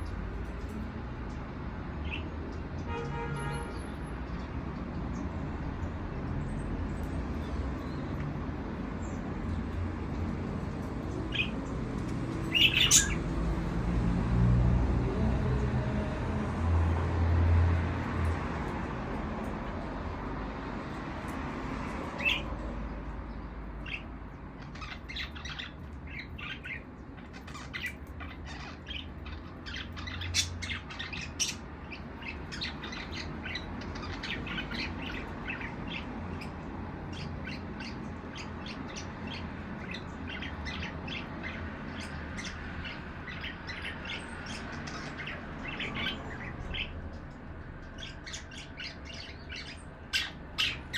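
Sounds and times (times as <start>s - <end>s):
budgerigars chirping and chattering: 2.0s - 2.9s, 6.8s - 13.9s, 22.0s - 22.6s, 23.7s - 50.9s.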